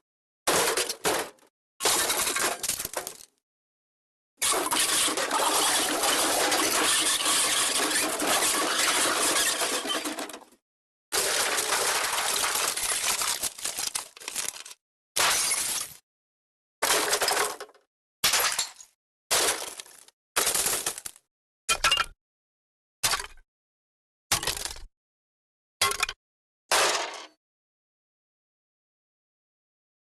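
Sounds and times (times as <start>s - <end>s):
crash of tumbling debris: 4.6s - 10.5s, 11.2s - 14.8s.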